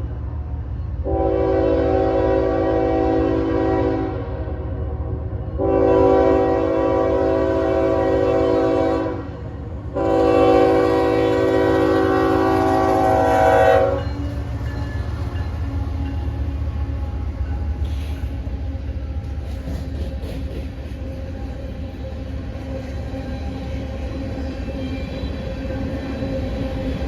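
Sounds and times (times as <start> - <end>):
low rumble of moving train: 0.0 - 27.0
locomotive air horn blasts: 1.0 - 4.6, 5.6 - 14.2.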